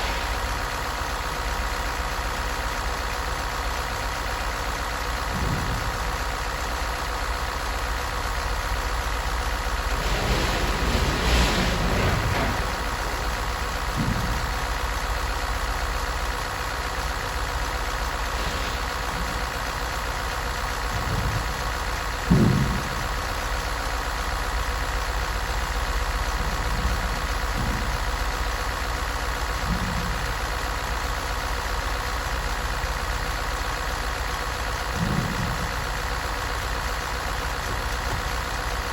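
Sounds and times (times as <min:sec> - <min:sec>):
engine idling: 0:00.0 - 0:38.9
brief low thumps: 0:21.0 - 0:23.2.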